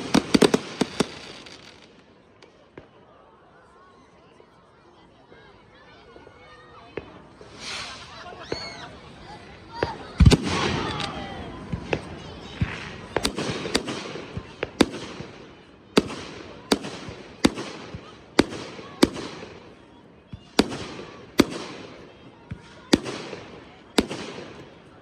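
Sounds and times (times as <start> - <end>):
firework shells bursting: 0.0 - 2.0
crackling hiss: 7.3 - 9.1.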